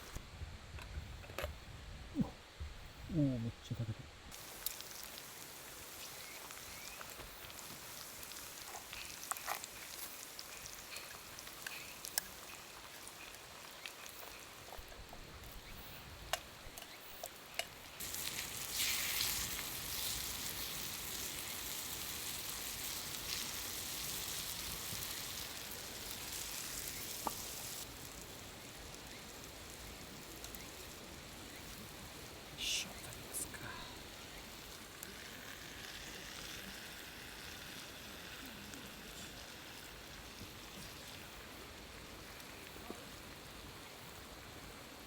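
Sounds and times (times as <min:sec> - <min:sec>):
small clicks and crackles: 0:04.3 - 0:43.7
food sizzling in a skillet: 0:04.3 - 0:45.0.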